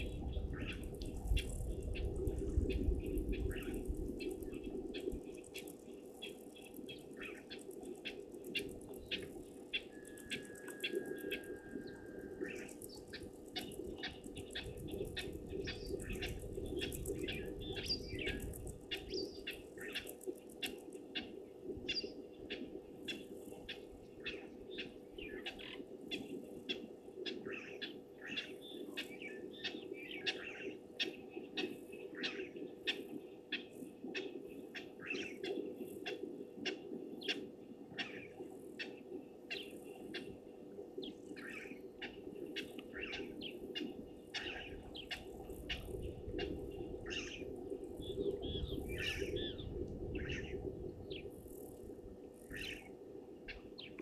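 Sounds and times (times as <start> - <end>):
birds chirping: 41.0 - 51.6.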